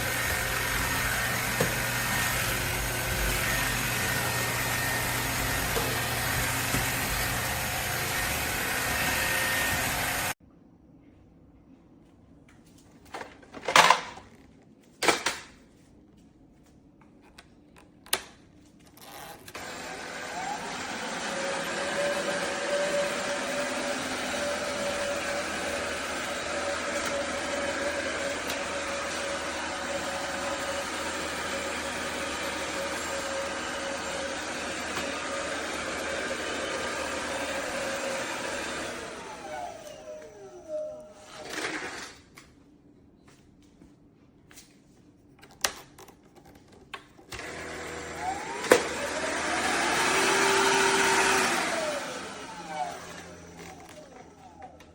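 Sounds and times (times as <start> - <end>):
vacuum cleaner motor whine: 0.0 - 10.4, 19.0 - 42.2, 47.3 - 54.9.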